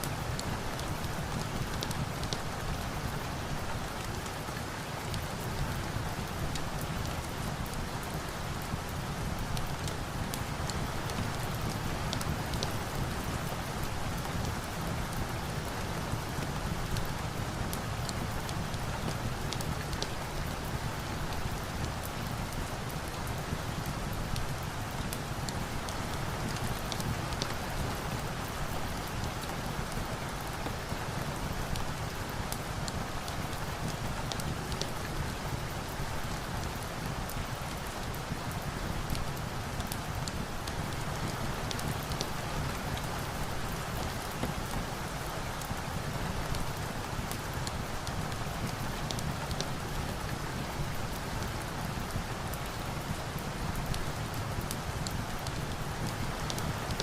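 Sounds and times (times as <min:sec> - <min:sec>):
rain falling: 0:00.0 - 0:57.0
wood fire crackling: 0:18.0 - 0:21.0.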